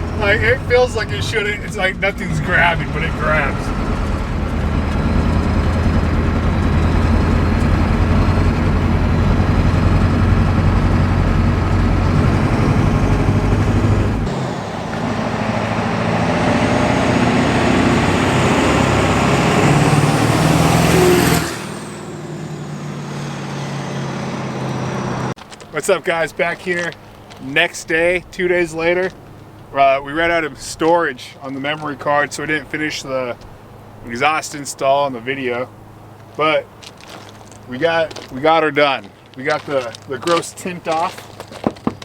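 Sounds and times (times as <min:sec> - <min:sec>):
diesel engine and road noise: 0:00.0 - 0:42.0
high whine: 0:13.5 - 0:20.3.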